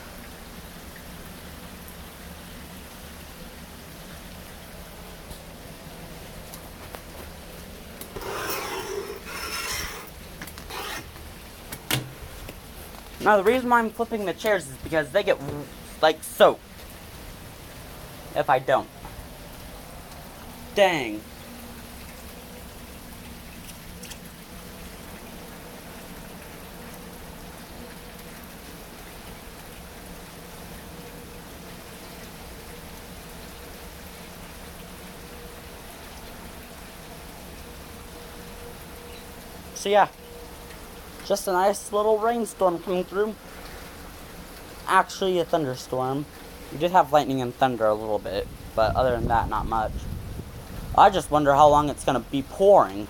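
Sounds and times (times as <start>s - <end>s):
steady rain: 0.0s - 53.0s
chairs scraping: 8.1s - 12.3s.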